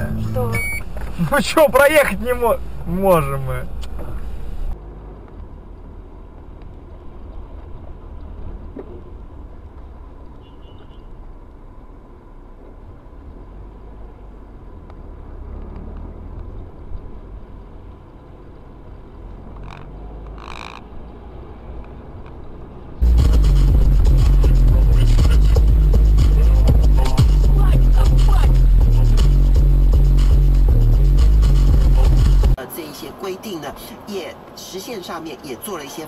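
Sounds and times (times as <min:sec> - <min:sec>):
car cabin low rumble: 0:00.0 - 0:10.2, 0:23.0 - 0:32.6.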